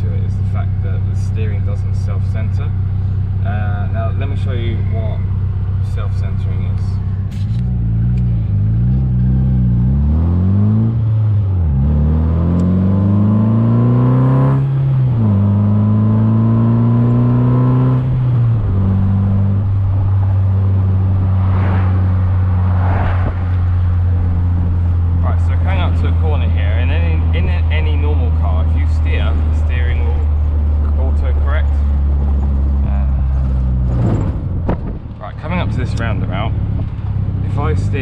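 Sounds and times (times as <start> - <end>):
car engine accelerating: 0.0 - 38.0.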